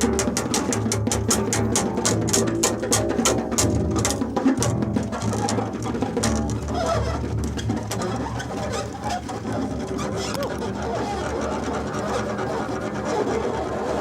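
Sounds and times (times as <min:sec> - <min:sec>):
rapid clicking strikes: 0:00.0 - 0:14.0.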